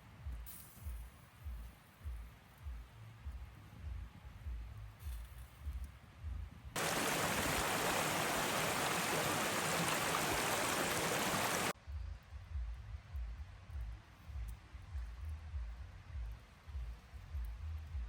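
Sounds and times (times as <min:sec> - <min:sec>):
rushing water: 0:06.8 - 0:11.8.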